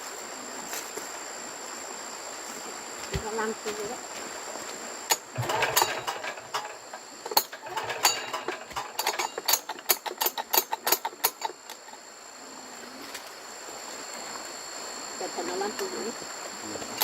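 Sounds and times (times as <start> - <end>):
metal hand tools clinking: 5.1 - 11.5.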